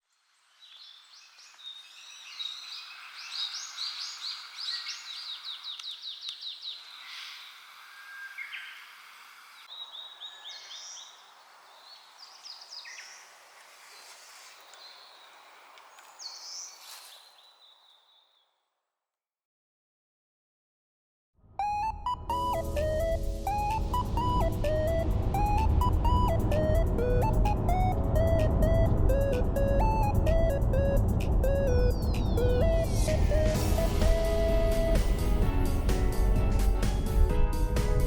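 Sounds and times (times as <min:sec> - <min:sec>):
soft outdoor hiss: 0:00.0 - 0:18.4
wild birds singing: 0:00.6 - 0:18.6.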